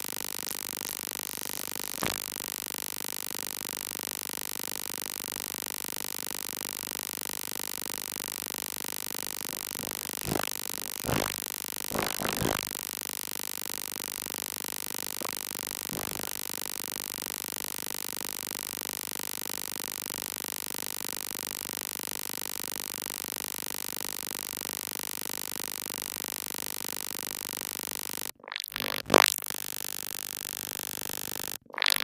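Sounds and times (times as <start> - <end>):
steady noise: 9.5 - 12.8, 15.2 - 16.6.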